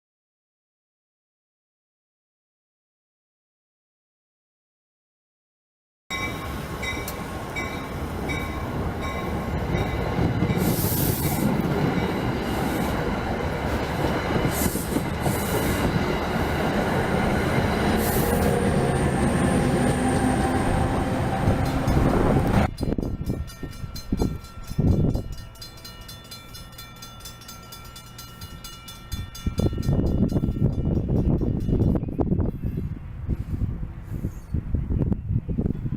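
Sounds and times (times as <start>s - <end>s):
train wheels on rails: 6.1s - 32.0s
high-pitched bursts: 6.4s - 22.8s.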